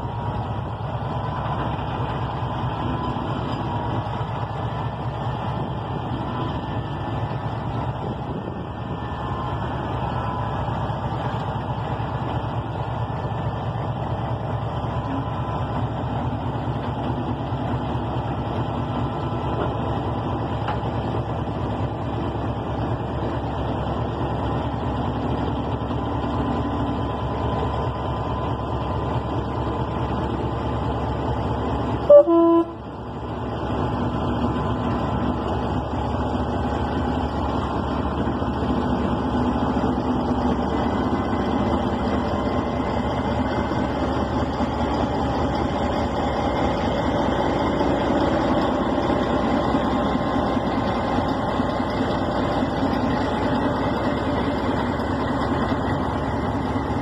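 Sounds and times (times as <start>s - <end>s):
diesel locomotive: 0.0s - 57.0s
freight train wagons rumbling: 0.0s - 57.0s
train horn toot: 32.0s - 32.9s.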